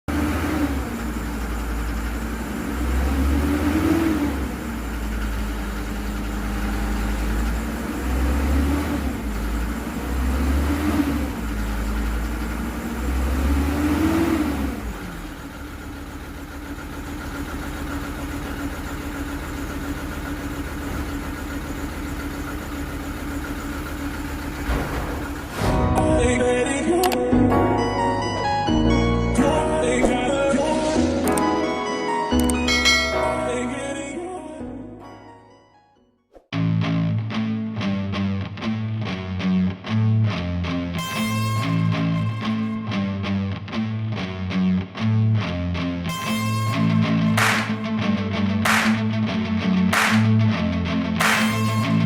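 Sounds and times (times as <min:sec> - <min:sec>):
car engine revving and idling: 0:00.0 - 0:31.5, 0:46.1 - 0:48.0, 0:48.6 - 0:52.0.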